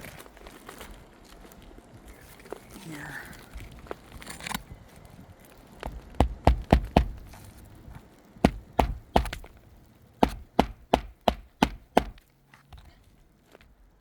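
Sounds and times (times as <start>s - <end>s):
hammer driving roofing nails: 6.2s - 7.4s, 8.4s - 9.6s, 10.2s - 12.9s.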